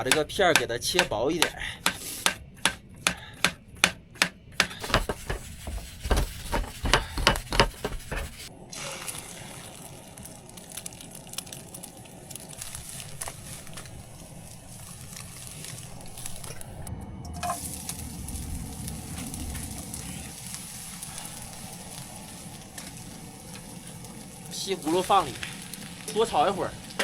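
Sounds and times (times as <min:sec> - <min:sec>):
knife chopping on cutting board: 0:00.0 - 0:08.5
frying sizzle in pan: 0:04.8 - 0:27.0.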